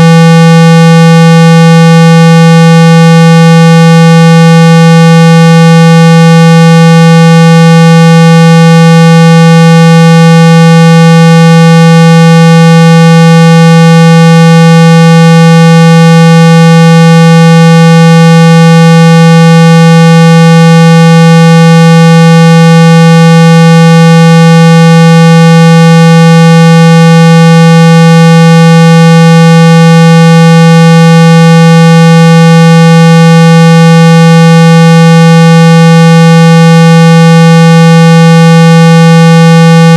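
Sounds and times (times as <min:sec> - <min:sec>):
steady synthesized tone: 0:00.0 - 0:29.9.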